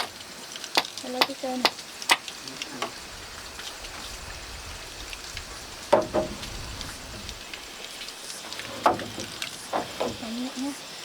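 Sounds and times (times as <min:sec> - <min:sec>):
light rain hissing: 0:00.0 - 0:11.0.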